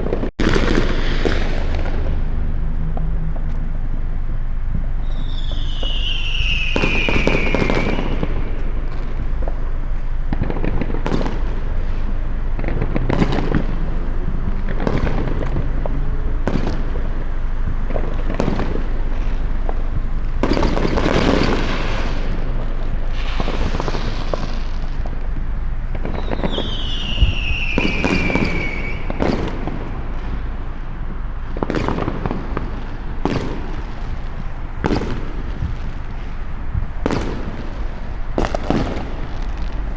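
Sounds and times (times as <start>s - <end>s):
firework whistle falling in pitch: 0.0s - 31.0s
fireworks bangs and pops: 0.0s - 39.9s
steady low rumble: 0.0s - 39.9s.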